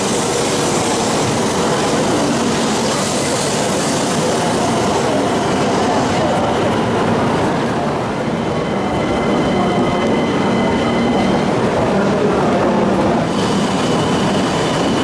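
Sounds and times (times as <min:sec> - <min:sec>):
train rushing rumble: 0:00.0 - 0:15.0.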